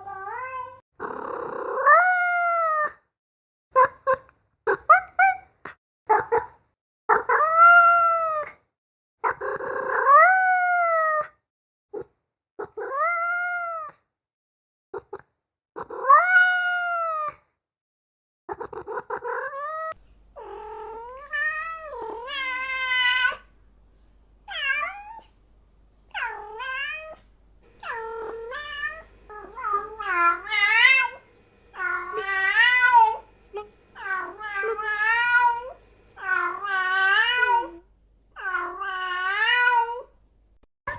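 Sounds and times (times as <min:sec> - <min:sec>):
faint steady hum: 0:27.4 - 0:38.1
cat meowing: 0:27.8 - 0:37.8.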